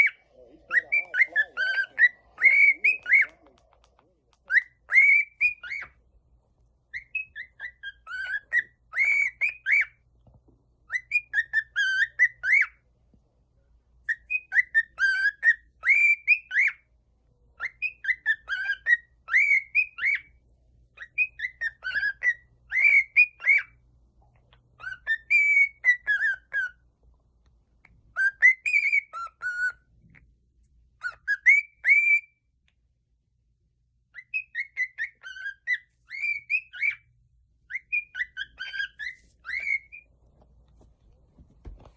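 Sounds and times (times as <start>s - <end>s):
cockatiel whistling: 0.0s - 3.8s, 4.4s - 6.0s, 6.9s - 10.0s, 10.8s - 12.8s, 14.1s - 16.9s, 17.6s - 20.4s, 21.0s - 23.8s, 24.8s - 26.8s, 28.1s - 30.2s, 31.0s - 32.4s, 34.1s - 37.1s, 37.7s - 40.1s.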